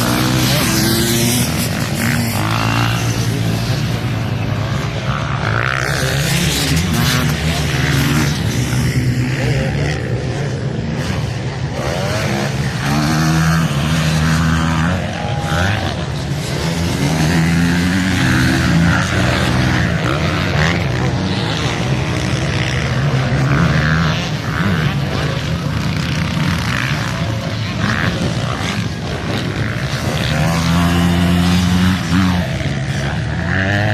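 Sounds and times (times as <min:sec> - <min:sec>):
motocross bikes revving: 0:00.0 - 0:33.9.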